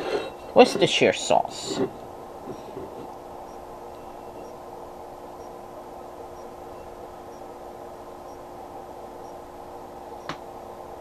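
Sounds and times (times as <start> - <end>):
appliance fan hum and hiss: 0.0 - 11.0
faint ticking: 2.5 - 5.6, 6.2 - 7.6, 8.2 - 8.5, 9.2 - 9.5.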